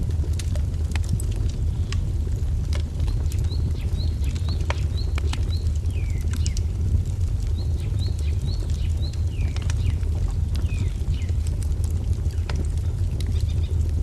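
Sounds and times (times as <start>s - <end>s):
low rumble: 0.0s - 14.0s
wood fire crackling and popping: 0.0s - 14.0s.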